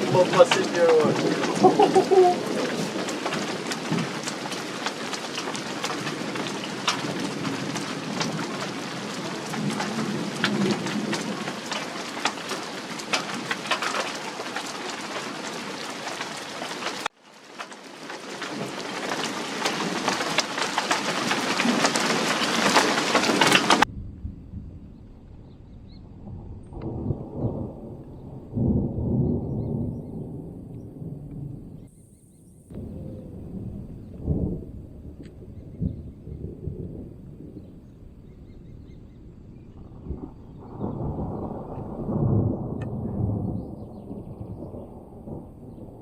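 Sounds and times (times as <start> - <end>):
low thunder rumble: 0.0 - 17.1, 18.3 - 46.0
heavy rain: 0.0 - 31.9, 32.7 - 46.0.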